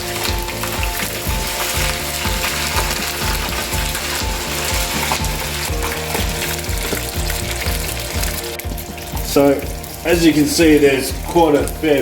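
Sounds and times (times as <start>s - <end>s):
fries sizzling in oil: 0.0s - 12.0s
low repeating beat: 0.0s - 12.0s.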